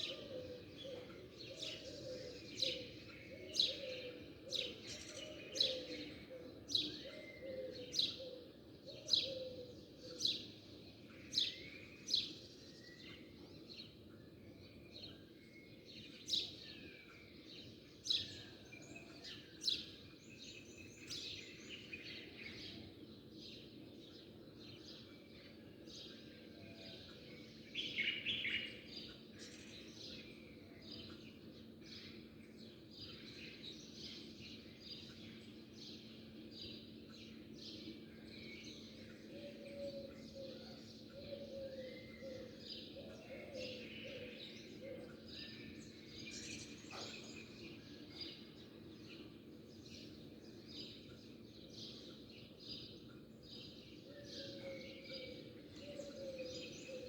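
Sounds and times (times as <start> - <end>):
birds twittering: 23.6 - 57.0
small birds chirping: 26.8 - 57.0.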